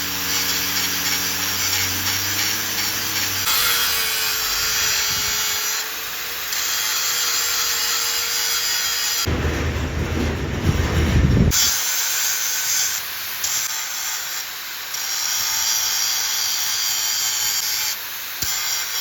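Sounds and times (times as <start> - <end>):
power tool grinding metal: 0.0 - 19.0
low motor hum: 9.3 - 11.6.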